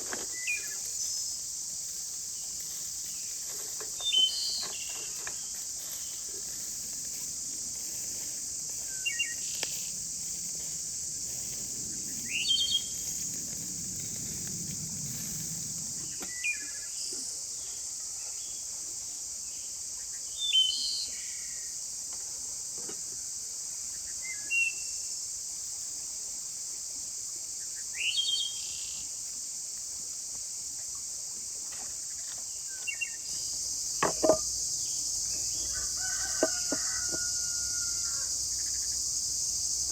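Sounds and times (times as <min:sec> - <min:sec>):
insect chorus: 0:00.0 - 0:39.9
rooster crowing: 0:35.5 - 0:38.4.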